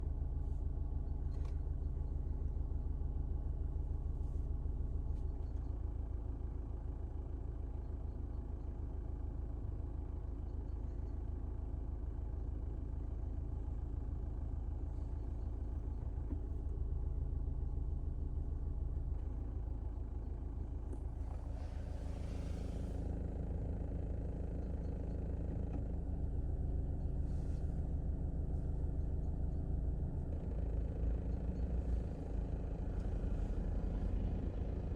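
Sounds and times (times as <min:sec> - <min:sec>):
car engine hum: 0:13.4 - 0:34.9.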